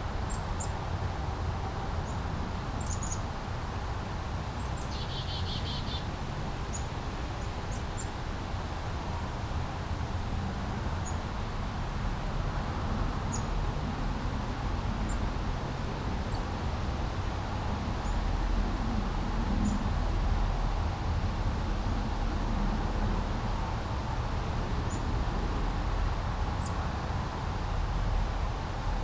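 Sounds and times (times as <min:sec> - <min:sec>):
low traffic rumble: 0:09.8 - 0:29.0.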